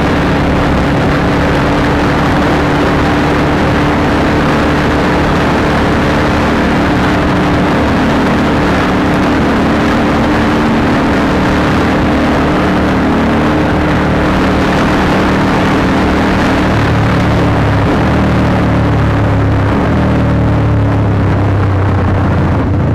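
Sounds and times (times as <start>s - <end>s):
motorcycle engine running: 0.0s - 22.9s
wind noise: 0.0s - 22.9s.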